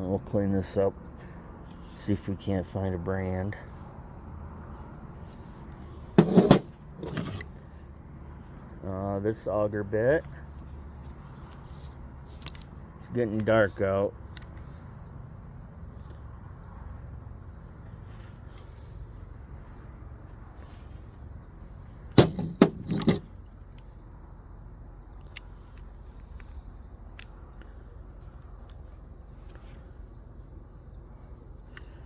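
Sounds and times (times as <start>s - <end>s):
crickets chirping: 0.0s - 32.0s
metal hand tools clanking: 5.7s - 7.5s, 22.2s - 23.6s.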